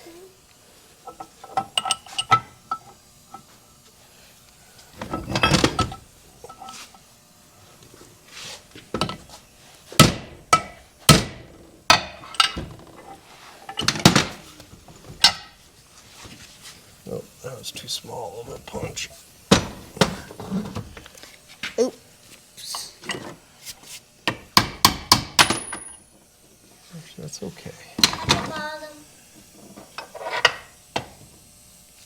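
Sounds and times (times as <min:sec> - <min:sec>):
hammer striking steel punch: 0:24.6 - 0:25.7.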